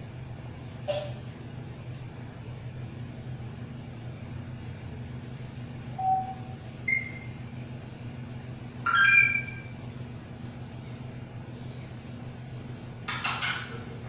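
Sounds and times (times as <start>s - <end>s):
steady low hum: 0.0s - 14.0s
pet bird calling: 8.9s - 9.7s.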